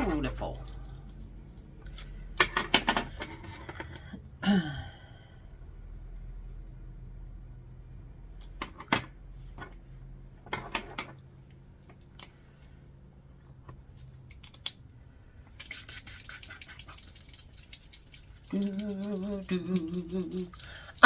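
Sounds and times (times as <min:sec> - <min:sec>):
paint pen rattling when shaken: 0:15.7 - 0:21.0.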